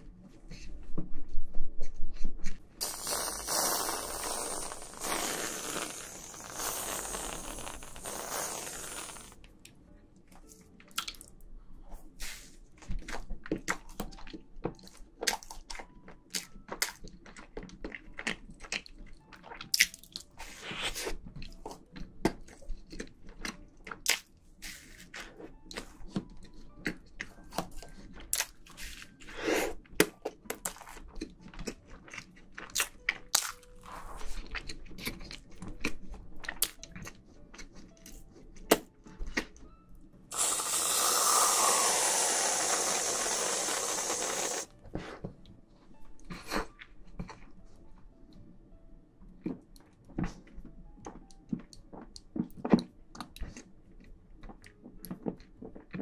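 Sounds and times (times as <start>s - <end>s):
chewing soft cake: 12.2s - 39.7s, 40.4s - 48.1s, 49.4s - 56.0s.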